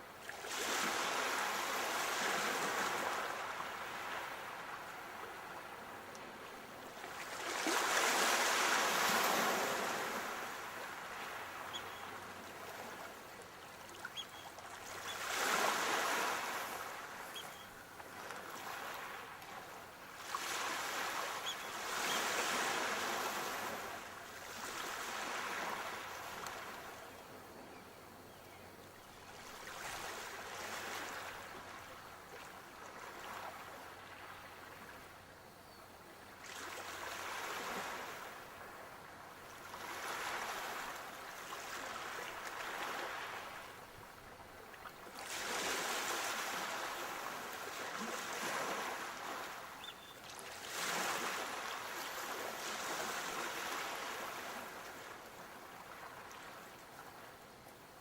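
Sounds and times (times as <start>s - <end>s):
sea waves breaking on shore: 0.2s - 27.0s, 29.0s - 35.1s, 36.3s - 57.3s.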